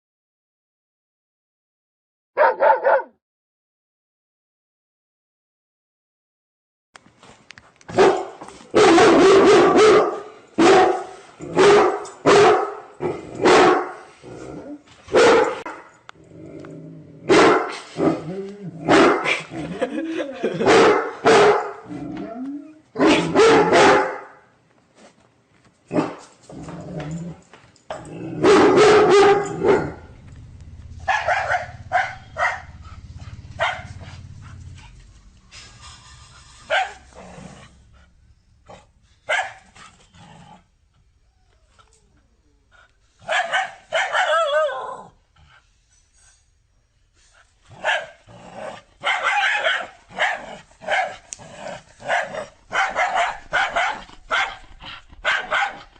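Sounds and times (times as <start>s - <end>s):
dog barking: 2.4s - 3.2s, 7.9s - 14.0s, 15.1s - 15.9s, 17.3s - 18.2s, 18.9s - 19.4s, 20.6s - 21.9s, 23.0s - 24.4s, 25.9s - 26.2s, 28.4s - 30.1s, 31.0s - 32.8s, 33.6s - 34.0s, 36.7s - 37.1s, 39.3s - 39.6s, 43.2s - 44.9s, 47.8s - 48.2s, 49.0s - 51.2s, 52.0s - 55.9s.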